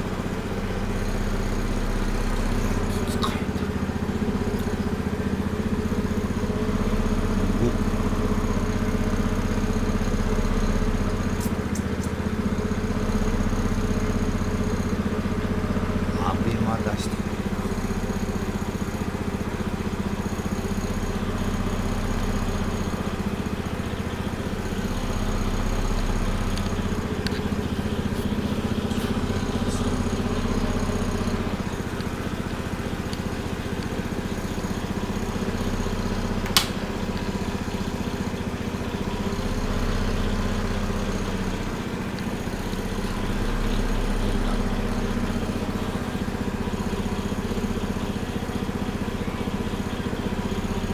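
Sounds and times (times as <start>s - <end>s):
small engine running: 0.0s - 50.9s
sharp click: 36.4s - 37.3s.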